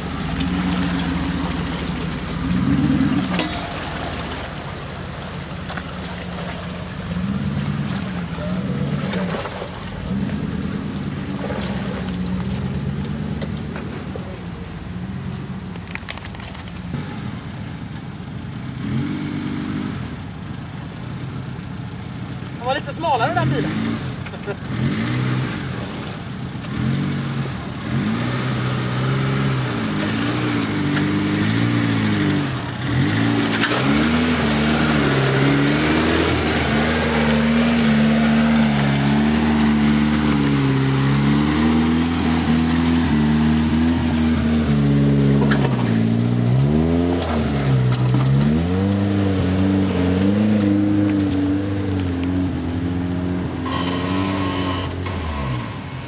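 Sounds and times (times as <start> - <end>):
engine revving under load: 0.0 - 4.7, 18.7 - 20.1, 23.0 - 56.0.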